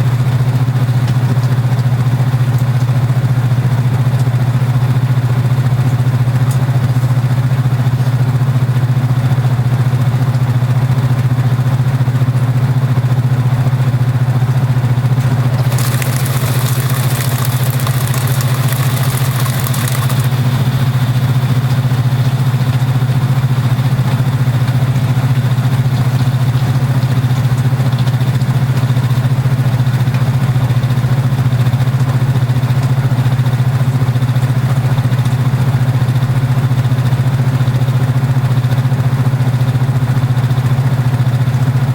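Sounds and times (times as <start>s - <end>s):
washing machine humming: 15.3s - 20.9s.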